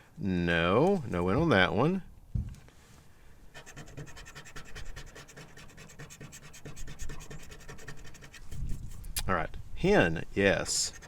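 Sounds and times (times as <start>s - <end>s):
lottery ticket being scratched: 3.6s - 9.1s, 10.6s - 11.0s.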